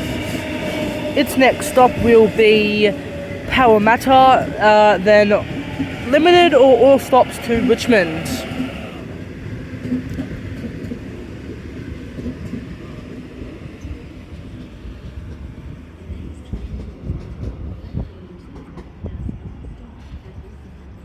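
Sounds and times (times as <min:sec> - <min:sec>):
wheels clacking over rail joints: 0:00.0 - 0:15.8
train wheels rumbling on rail: 0:00.0 - 0:21.0.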